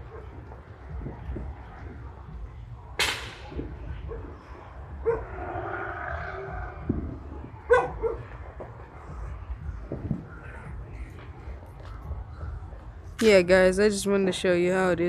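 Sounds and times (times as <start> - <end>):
sharp crack: 3.0 - 3.6
dog barking: 5.0 - 5.4, 7.7 - 8.3.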